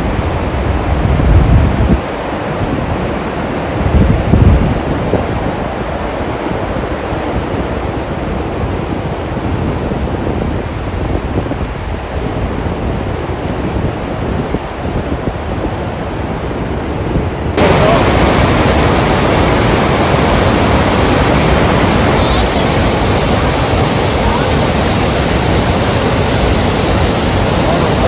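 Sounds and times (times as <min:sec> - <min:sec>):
wind rumble on microphone: 0:00.0 - 0:28.0
waterfall roaring: 0:17.6 - 0:28.0.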